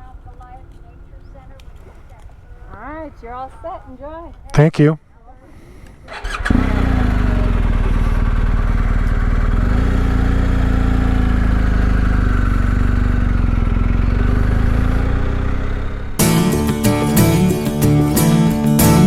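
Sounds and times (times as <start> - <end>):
motorcycle pulling away: 6.1 - 19.0.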